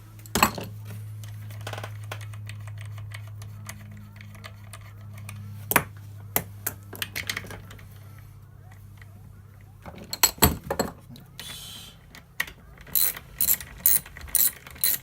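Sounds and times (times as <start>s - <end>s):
steady low hum: 0.0s - 15.0s
hand ratchet clicking: 12.8s - 15.0s.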